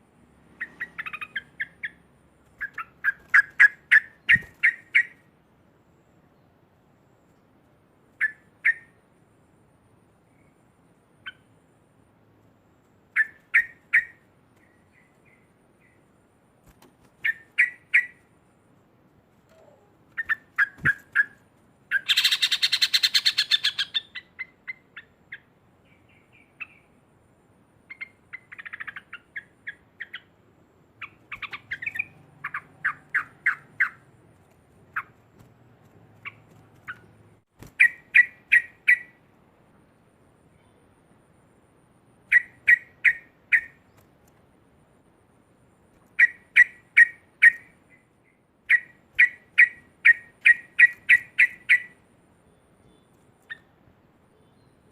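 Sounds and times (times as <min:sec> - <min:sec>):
bird fast chattering: 0:00.6 - 0:02.0, 0:20.2 - 0:25.1, 0:31.0 - 0:34.1
bird calling clipped notes: 0:02.6 - 0:05.2, 0:19.4 - 0:24.8, 0:31.0 - 0:34.0, 0:46.0 - 0:47.7, 0:48.7 - 0:52.0.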